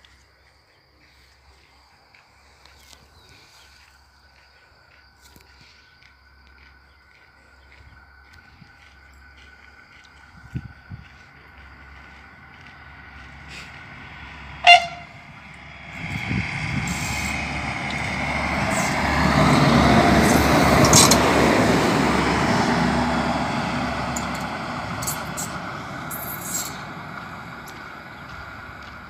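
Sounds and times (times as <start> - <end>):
train passing: 3.8 - 29.0
train horn toot: 14.6 - 15.4.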